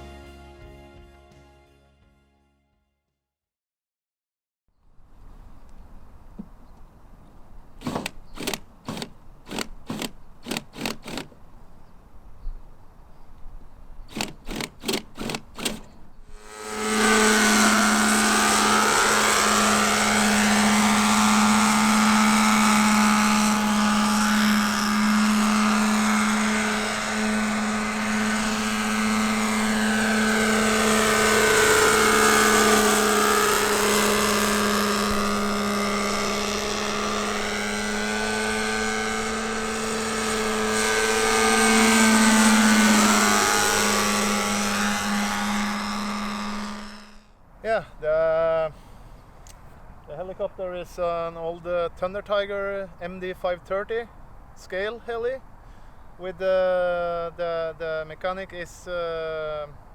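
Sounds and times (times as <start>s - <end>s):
model helicopter engine drone: 7.8s - 11.4s, 14.0s - 47.4s
quick clicks: 7.8s - 11.4s, 14.1s - 16.0s.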